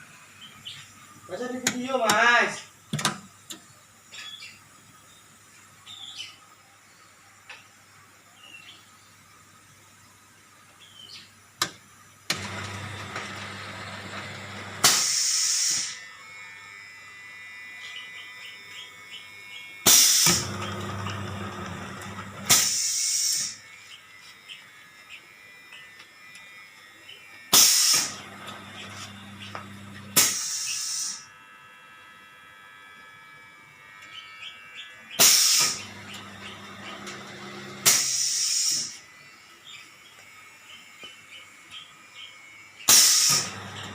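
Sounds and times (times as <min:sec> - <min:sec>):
machine buzzing hum: 0:08.6 - 0:43.9
loud short hissing burst: 0:14.8 - 0:16.0, 0:19.9 - 0:20.4, 0:22.5 - 0:23.6, 0:27.5 - 0:28.2, 0:30.2 - 0:31.3, 0:35.2 - 0:35.9, 0:37.8 - 0:39.0, 0:42.9 - 0:43.6.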